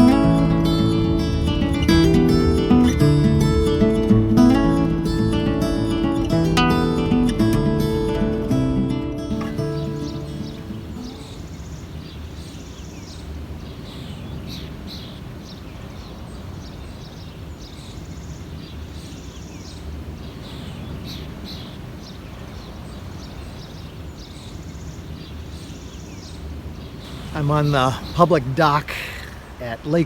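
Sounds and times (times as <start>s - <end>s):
low rumble of wind: 0.0s - 6.5s, 9.3s - 30.0s
songbirds chirping and singing: 9.3s - 30.0s.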